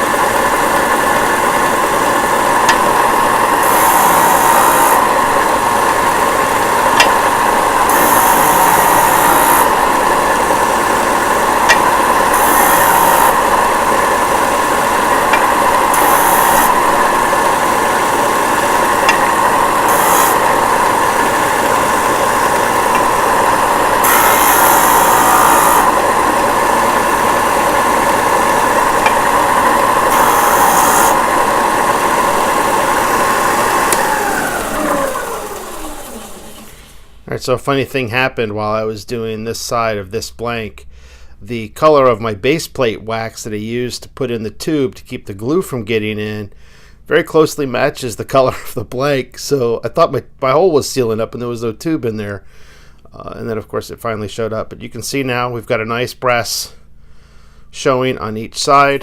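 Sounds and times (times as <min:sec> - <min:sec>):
disc sander motor humming: 0:00.0 - 0:37.2
high rasping hiss of sanding: 0:12.2 - 0:13.4, 0:19.8 - 0:21.3, 0:24.0 - 0:26.2, 0:27.2 - 0:31.4.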